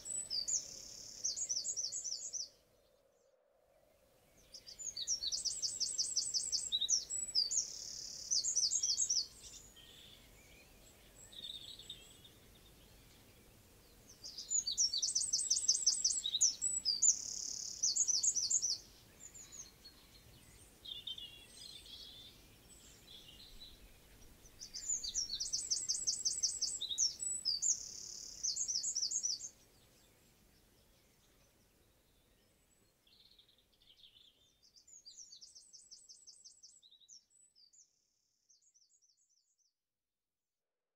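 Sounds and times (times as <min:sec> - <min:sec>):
wren singing: 0:04.6 - 0:12.5, 0:14.0 - 0:29.6.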